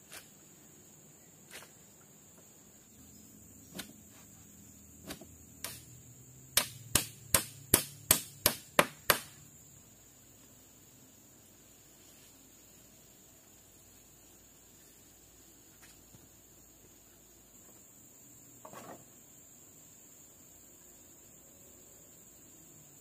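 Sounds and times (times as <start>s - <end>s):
sharp tool strikes: 3.7s - 3.9s, 5.0s - 9.4s.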